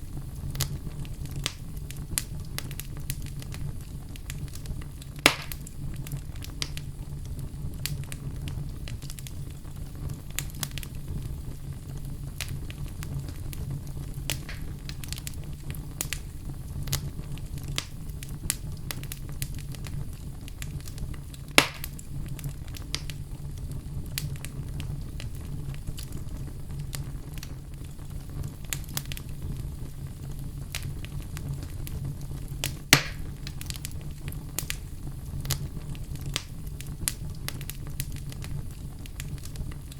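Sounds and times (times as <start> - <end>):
sharp fire pops: 0.0 - 39.9
wood fire crackling: 0.0 - 39.9.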